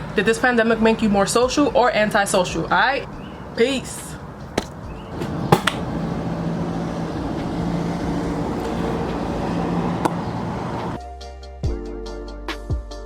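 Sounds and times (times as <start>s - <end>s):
road traffic noise: 0.0s - 11.0s
sharp knocks: 4.5s - 6.0s
music: 10.8s - 13.0s.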